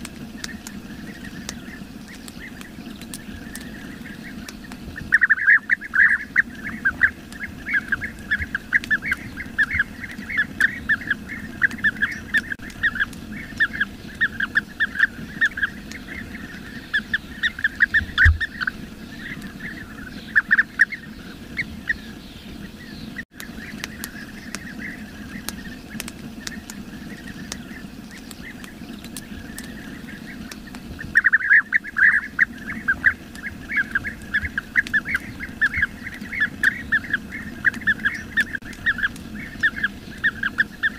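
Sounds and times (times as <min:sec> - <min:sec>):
birds rolling short calls: 0:00.0 - 0:40.9.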